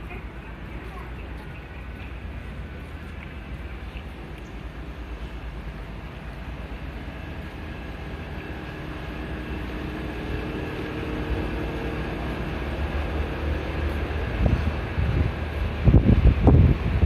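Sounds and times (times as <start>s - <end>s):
train approaching: 0.0s - 17.0s.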